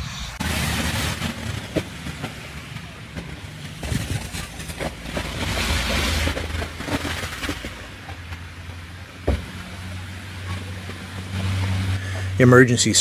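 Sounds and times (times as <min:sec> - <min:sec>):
car engine humming: 0:08.0 - 0:13.0
hissing rush: 0:11.9 - 0:13.0.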